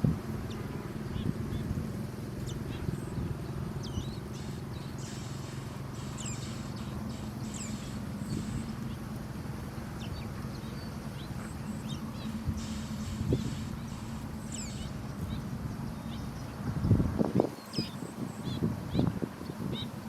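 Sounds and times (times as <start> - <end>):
steady low hum: 0.0 - 20.0
young sparrows chirping: 0.0 - 20.0
bird hissing: 4.2 - 8.8, 12.0 - 15.0.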